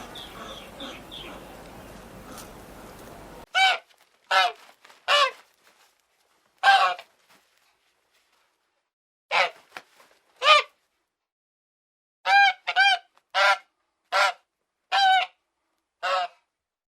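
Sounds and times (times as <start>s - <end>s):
waterfowl calling: 0.0s - 5.4s, 16.0s - 16.4s.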